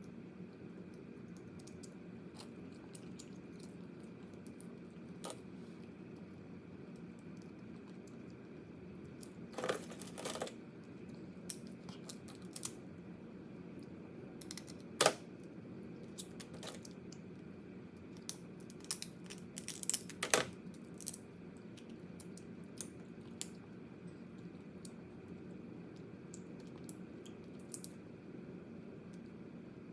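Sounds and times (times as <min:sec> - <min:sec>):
steady low hum: 0:00.0 - 0:29.9
crab shell cracking: 0:11.4 - 0:12.8, 0:14.4 - 0:15.2, 0:18.2 - 0:23.6.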